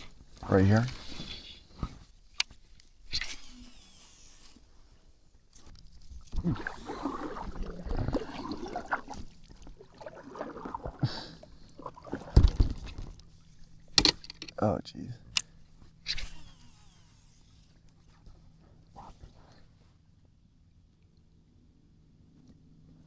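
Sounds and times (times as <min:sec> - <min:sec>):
knocks and rustling: 0:12.3 - 0:13.2
sharp click: 0:14.0 - 0:14.6.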